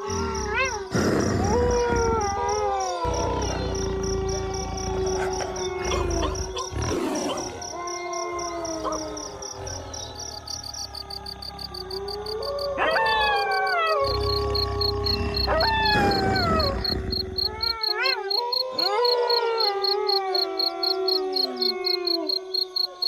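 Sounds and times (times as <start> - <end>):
crickets chirping: 0.0 - 23.0
wolves howling: 0.0 - 23.0
wolves yipping: 4.9 - 9.6, 15.4 - 23.0.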